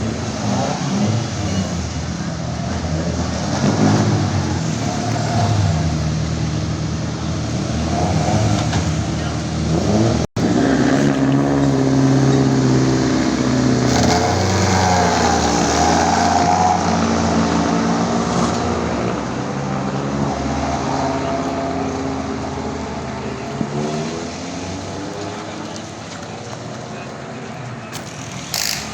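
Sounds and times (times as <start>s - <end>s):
race car engines revving: 0.0s - 28.9s.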